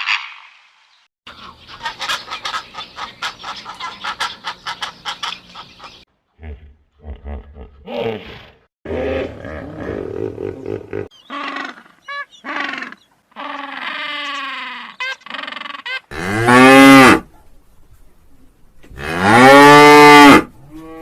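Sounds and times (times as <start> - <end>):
animal calls: 1.7 - 16.1.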